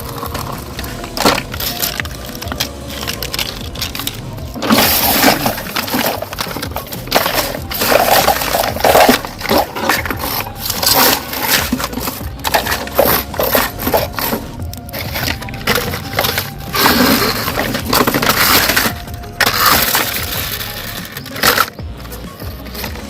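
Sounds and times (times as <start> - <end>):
small hard objects clattering: 0.0 - 23.0.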